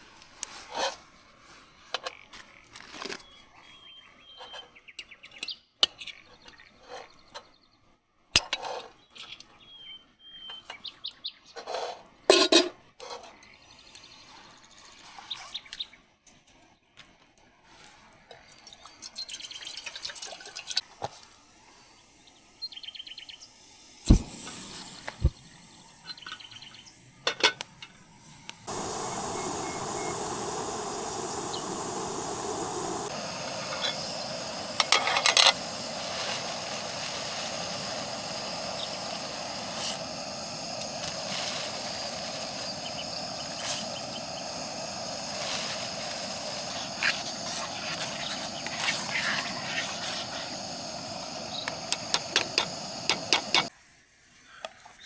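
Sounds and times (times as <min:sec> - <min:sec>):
steady hiss: 0:23.4 - 0:53.7
birds chirping: 0:28.7 - 0:53.7.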